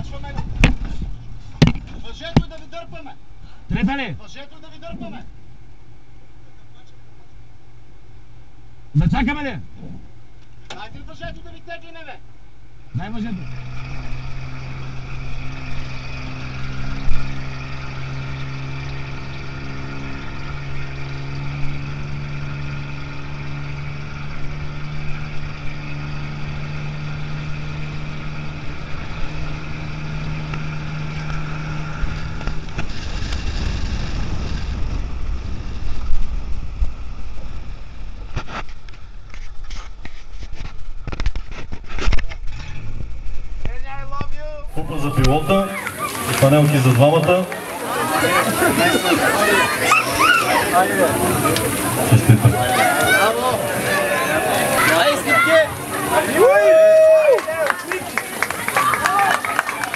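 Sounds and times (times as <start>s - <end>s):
rally car engine running: 0.0s - 59.9s
sharp knocks: 1.6s - 2.6s
tyres on gravel: 44.7s - 59.9s.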